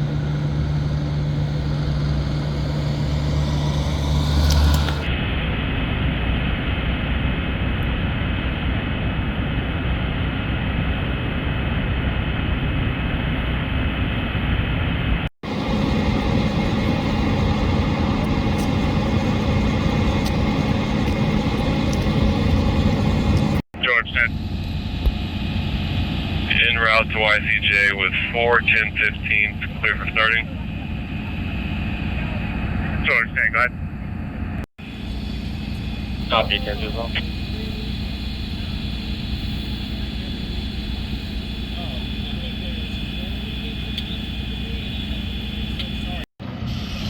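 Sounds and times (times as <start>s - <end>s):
vehicle engines idling: 0.0s - 5.2s, 15.4s - 47.0s.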